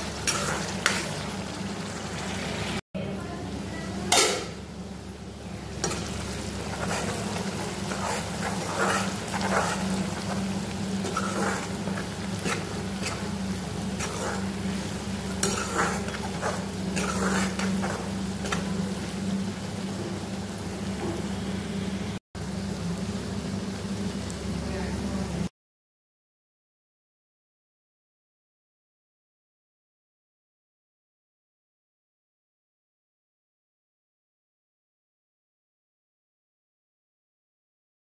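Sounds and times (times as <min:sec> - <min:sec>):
spatula scraping pan: 0:00.0 - 0:01.3, 0:05.8 - 0:18.8
meat sizzling in gravy: 0:00.0 - 0:02.8, 0:04.2 - 0:21.0.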